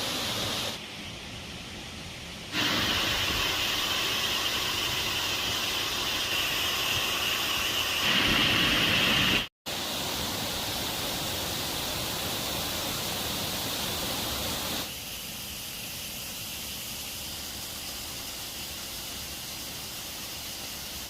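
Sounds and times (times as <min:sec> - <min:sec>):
waterfall rushing: 0:00.0 - 0:00.8, 0:02.5 - 0:14.9.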